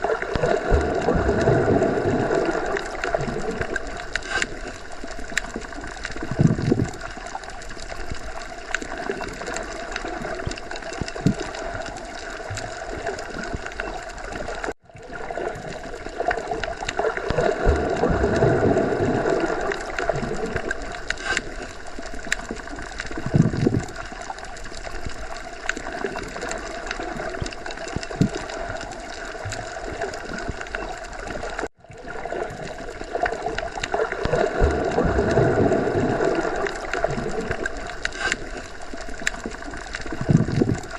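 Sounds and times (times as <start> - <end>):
underwater watery wash: 0.0 - 40.9.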